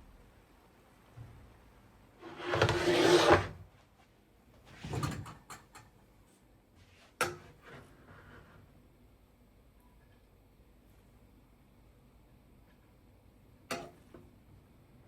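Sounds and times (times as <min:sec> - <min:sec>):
loud scraping slide: 0:02.3 - 0:03.5.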